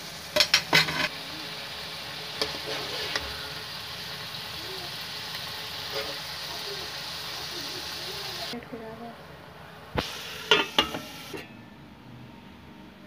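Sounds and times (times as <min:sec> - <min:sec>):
food sizzling in oil: 0:00.0 - 0:08.6, 0:10.0 - 0:11.5
metal utensil scraping a pan: 0:00.4 - 0:01.2, 0:02.3 - 0:03.6, 0:05.8 - 0:06.3, 0:10.5 - 0:11.6.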